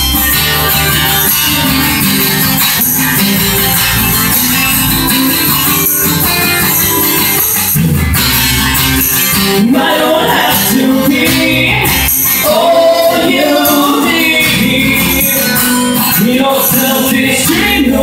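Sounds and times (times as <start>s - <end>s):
guitars: 0.0s - 18.0s
percussion: 0.0s - 18.0s
person singing: 9.4s - 18.0s.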